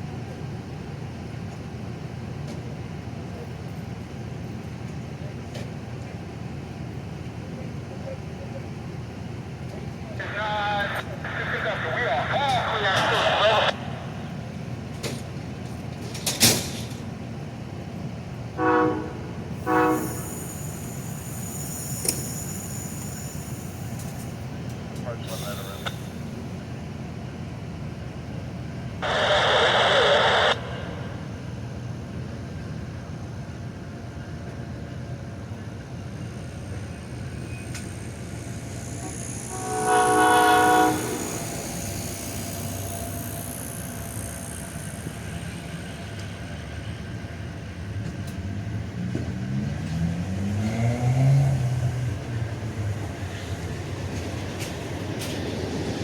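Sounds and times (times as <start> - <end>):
train rising whine: 9.1 - 56.0
multi-tone train horn: 18.6 - 20.6, 38.9 - 45.1
loud noisy blast: 29.0 - 31.6.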